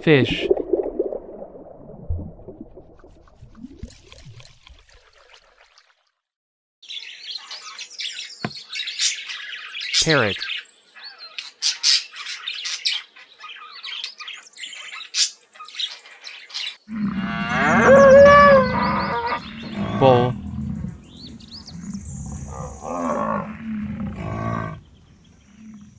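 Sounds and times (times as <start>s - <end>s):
bull bellowing: 16.9s - 24.9s.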